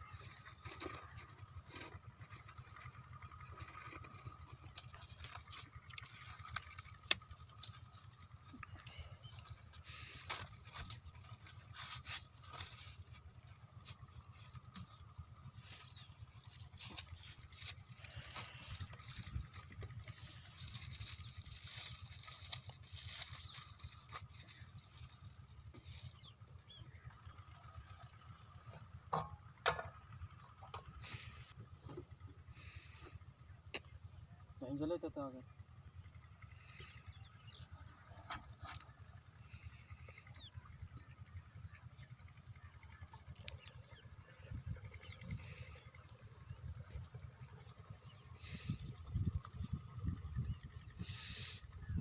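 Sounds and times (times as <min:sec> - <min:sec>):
light clicks and patter: 0:00.0 - 0:26.7
small engine droning: 0:00.0 - 0:52.0.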